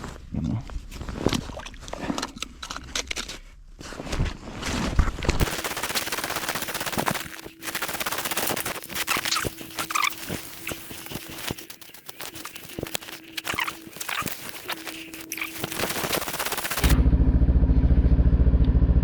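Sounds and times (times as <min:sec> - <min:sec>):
handling knocks and scrapes: 0:00.0 - 0:05.4
camera rubbing against fabric: 0:03.8 - 0:17.0.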